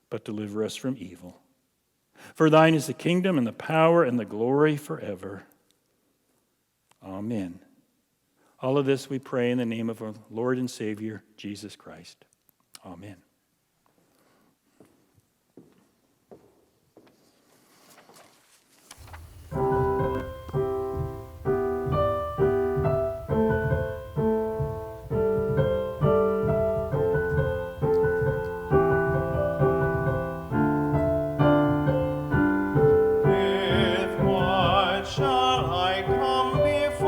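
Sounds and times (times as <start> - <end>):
piano chords: 19.0 - 37.0
person singing hymn with vibrato: 32.8 - 37.0.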